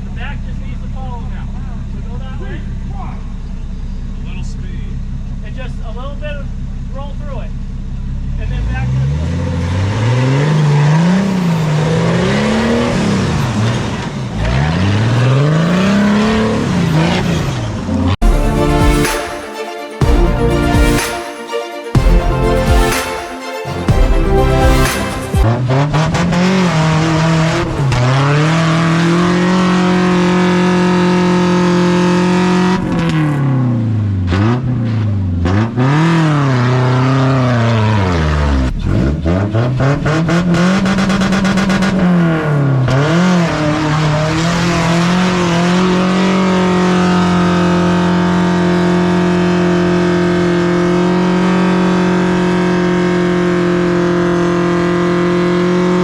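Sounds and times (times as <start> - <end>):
vehicle engine revving: 7.6 - 18.6, 25.4 - 56.0.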